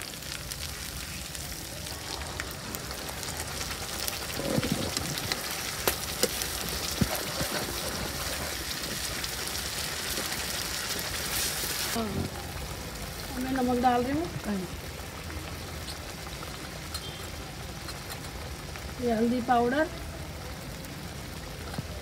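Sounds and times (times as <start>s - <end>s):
sauce sizzling in oil: 0.0s - 22.0s.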